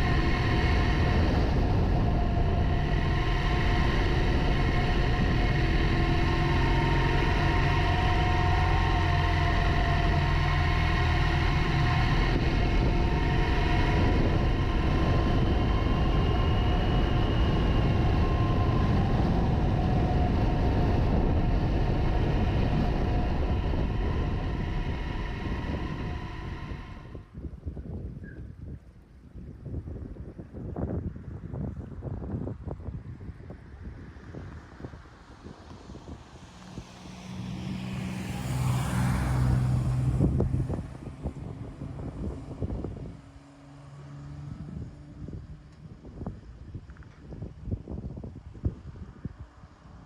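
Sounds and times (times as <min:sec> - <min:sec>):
motorcycle engine: 0:00.0 - 0:27.3
wind rush on microphone: 0:00.0 - 0:50.0.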